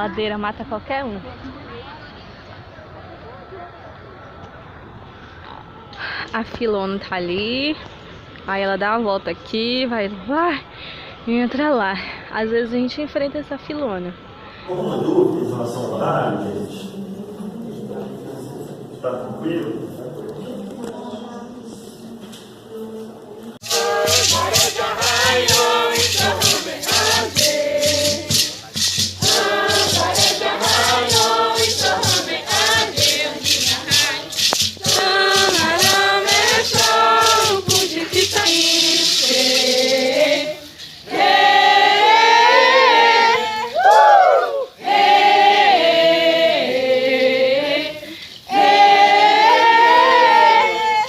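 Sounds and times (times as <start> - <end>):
voices singing: 20.5 - 51.0
shaken rattle beat: 23.6 - 51.0.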